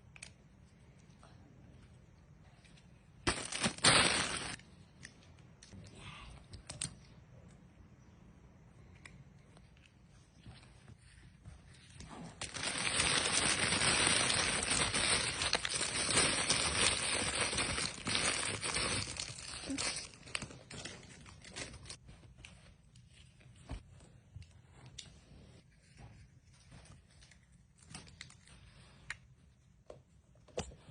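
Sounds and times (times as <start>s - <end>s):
packaging crumpling and tearing: 3.3s - 4.6s, 12.4s - 22.0s.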